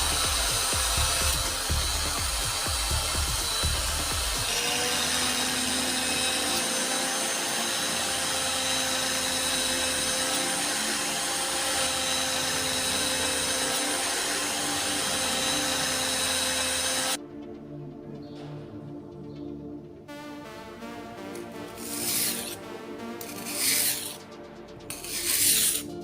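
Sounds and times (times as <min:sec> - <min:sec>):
electric power tool running: 0:00.0 - 0:17.2, 0:21.8 - 0:24.2, 0:25.0 - 0:25.8.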